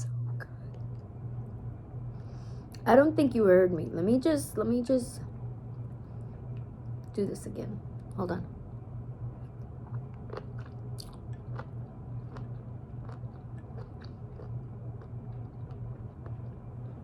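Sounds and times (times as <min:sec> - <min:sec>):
steady low hum: 0:00.0 - 0:17.0
person chewing crunchy food: 0:09.6 - 0:17.0.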